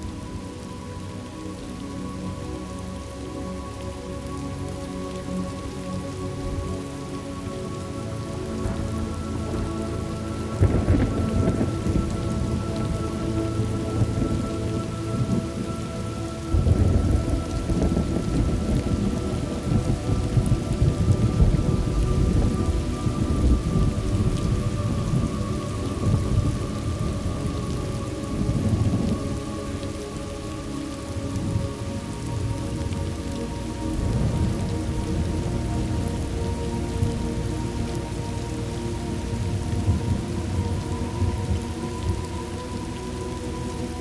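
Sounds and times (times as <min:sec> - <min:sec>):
steady rain: 0:00.0 - 0:44.0
thunder rolling: 0:10.6 - 0:13.1, 0:16.5 - 0:25.4.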